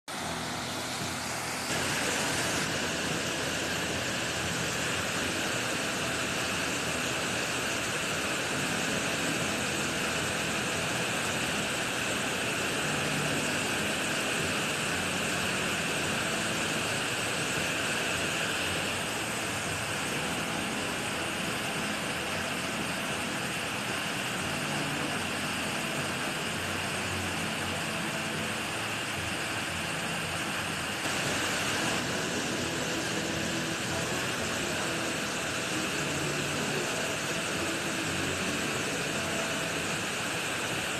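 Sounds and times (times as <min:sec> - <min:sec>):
waterfall rushing: 0:00.1 - 0:40.9.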